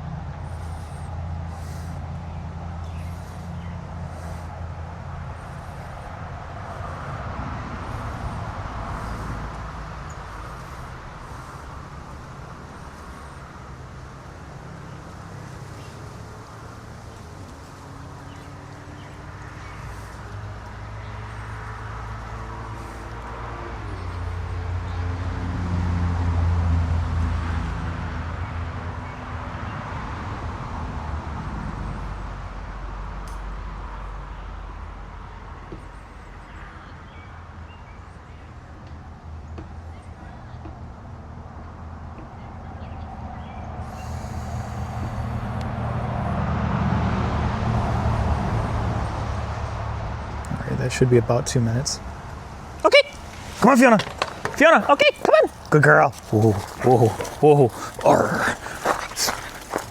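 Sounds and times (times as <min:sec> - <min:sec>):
vehicle engine humming: 0:00.0 - 0:26.0, 0:50.2 - 0:59.9.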